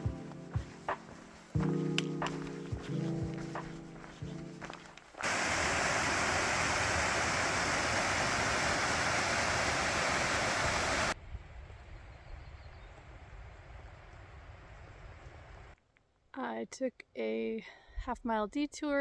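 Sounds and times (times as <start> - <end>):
mountain stream rushing: 4.6 - 11.2.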